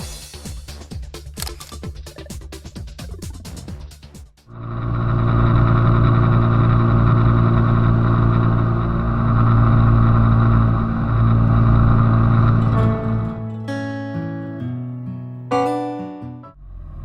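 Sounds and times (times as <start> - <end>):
motorcycle engine running: 4.5 - 13.3.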